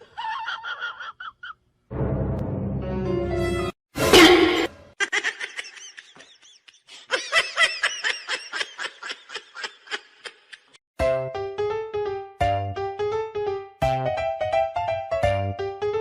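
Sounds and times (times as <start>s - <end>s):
high-pitched laughter: 0.0s - 1.6s, 5.0s - 10.8s
piano music: 1.9s - 3.8s, 11.0s - 16.0s.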